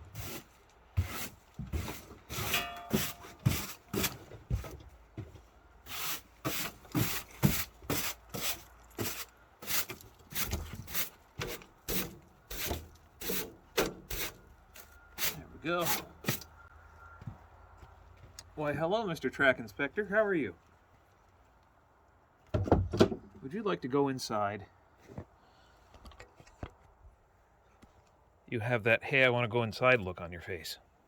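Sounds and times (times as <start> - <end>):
shovel scraping snow: 0.0 - 4.2, 5.9 - 16.4.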